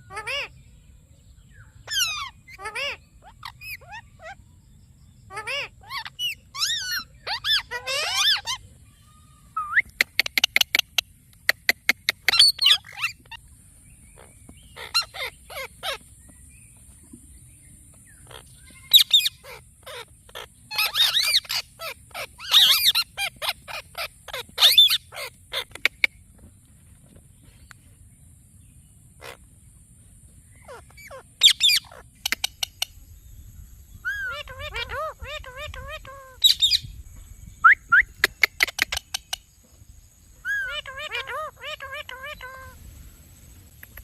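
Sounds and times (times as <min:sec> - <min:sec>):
parrot chirping and screeching: 0:00.1 - 0:00.5, 0:01.9 - 0:04.4, 0:05.3 - 0:08.6, 0:12.0 - 0:13.4, 0:14.2 - 0:16.0, 0:18.2 - 0:26.1, 0:30.6 - 0:32.9, 0:34.0 - 0:36.8, 0:40.4 - 0:42.8.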